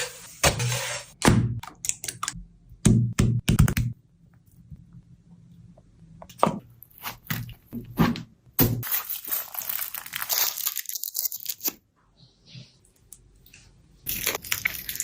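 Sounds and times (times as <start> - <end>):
food crunching and crinkling: 8.8 - 11.8, 14.0 - 15.0.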